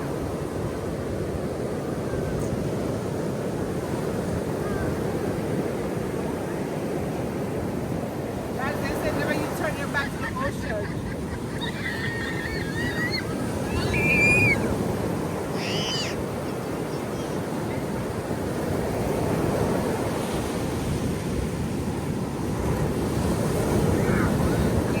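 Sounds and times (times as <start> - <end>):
ocean surf washing in: 0.0 - 25.0
short high-pitched calls: 11.6 - 14.6, 15.6 - 16.2.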